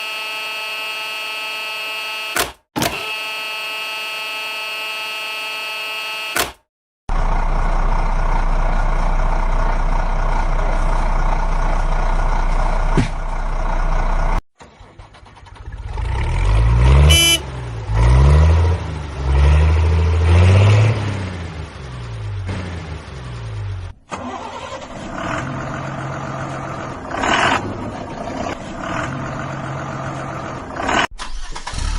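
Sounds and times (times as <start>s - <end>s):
vehicle engine revving: 14.7s - 31.9s
short horn toot: 17.1s - 17.5s.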